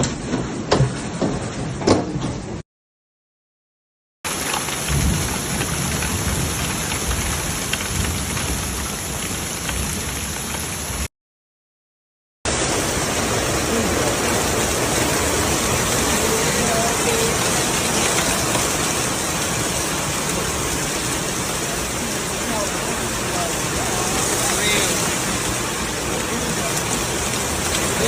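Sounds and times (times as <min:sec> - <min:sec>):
hailstones striking: 0:04.3 - 0:11.0, 0:12.6 - 0:28.0
heavy rain hissing: 0:04.3 - 0:11.1, 0:12.5 - 0:28.0.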